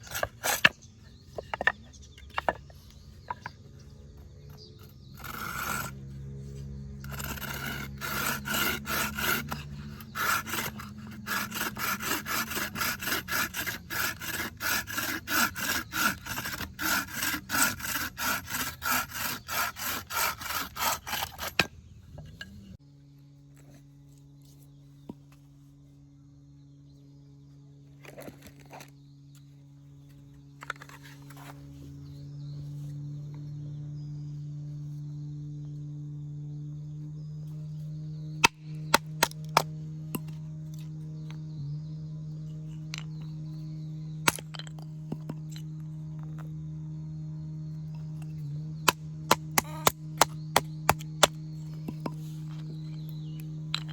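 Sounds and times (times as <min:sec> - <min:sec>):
hand saw cutting wood: 0:00.0 - 0:03.5, 0:04.4 - 0:21.8, 0:38.4 - 0:41.3, 0:48.0 - 0:53.9
steady low hum: 0:00.0 - 0:53.9
short rasping sounds: 0:04.8 - 0:21.7.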